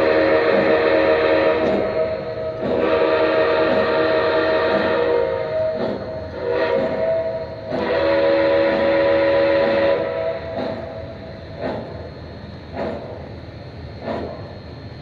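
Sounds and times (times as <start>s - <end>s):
toy train running strokes: 0.0s - 12.1s
toy train horn chord: 2.8s - 5.4s, 7.7s - 10.4s.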